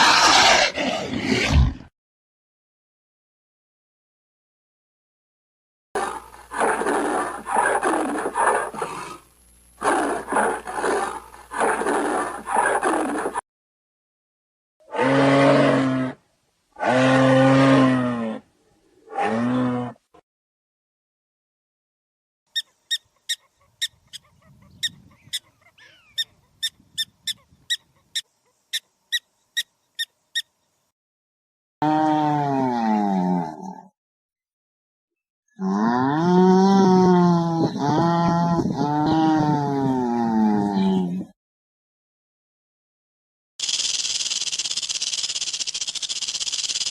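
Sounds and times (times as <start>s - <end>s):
large animal roaring: 14.8s - 16.2s, 16.8s - 20.1s, 31.8s - 33.9s, 35.6s - 41.3s.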